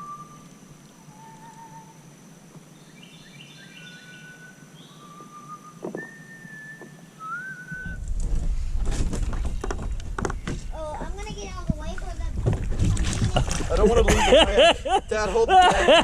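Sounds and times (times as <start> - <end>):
whistled notes: 0.0 - 2.0, 3.6 - 8.1
faint steady high tone: 0.0 - 8.0
low rushing noise: 7.0 - 13.6.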